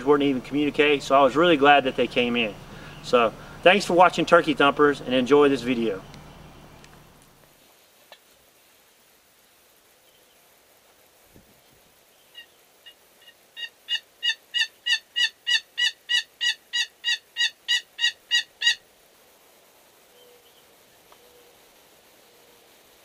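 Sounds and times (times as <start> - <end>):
turkey yelps: 12.3 - 18.8.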